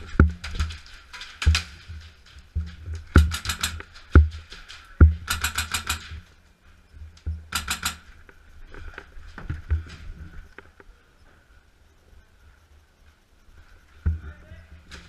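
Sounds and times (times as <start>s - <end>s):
airsoft rifle rapid bursts: 3.2s - 3.8s, 5.2s - 6.1s.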